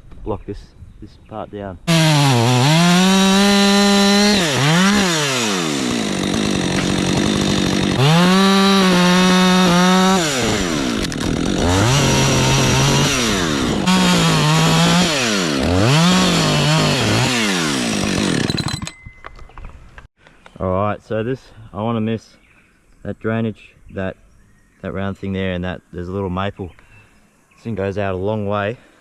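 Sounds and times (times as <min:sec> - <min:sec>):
chainsaw cutting wood: 0:01.9 - 0:19.0.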